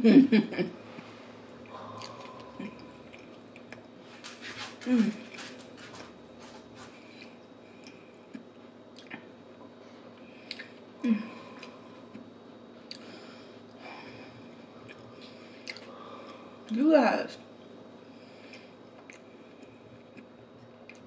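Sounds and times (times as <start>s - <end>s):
wet chewing mouth sounds: 1.7s - 5.9s.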